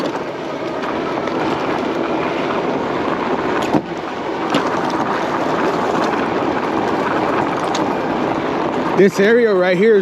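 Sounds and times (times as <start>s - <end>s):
wind rushing over microphone: 0.0s - 10.0s.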